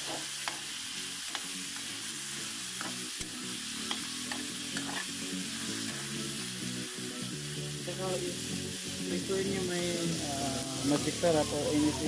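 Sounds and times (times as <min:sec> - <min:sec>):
meat sizzling in a pan: 0:00.0 - 0:12.0
metal spatula scraping a pan: 0:03.9 - 0:05.2.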